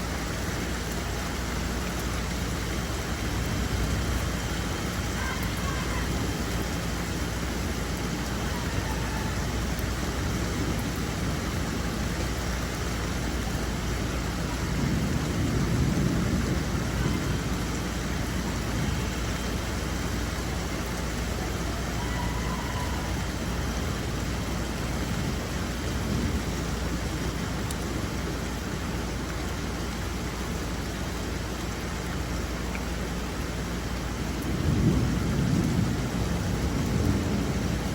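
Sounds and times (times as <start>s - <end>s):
rain falling: 0.0s - 37.9s.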